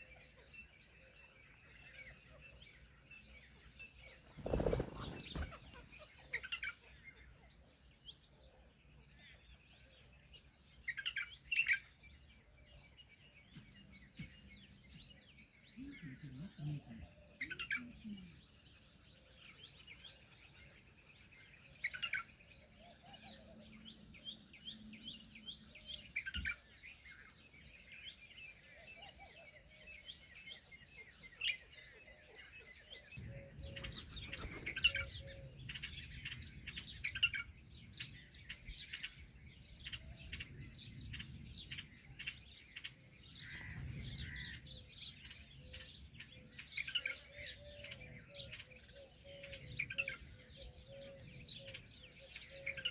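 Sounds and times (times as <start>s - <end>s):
small birds chirping and twittering: 0.0s - 52.9s
low rumble of wind: 33.0s - 52.6s.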